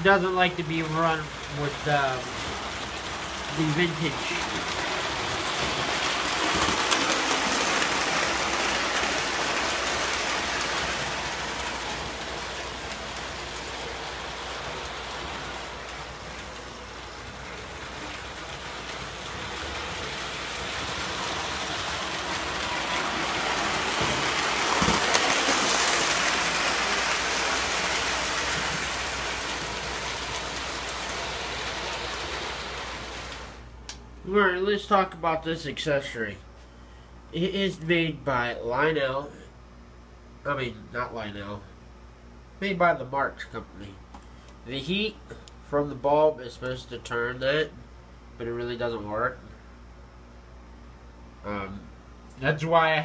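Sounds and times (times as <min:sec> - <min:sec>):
toy train rattling on track: 0:00.1 - 0:33.5.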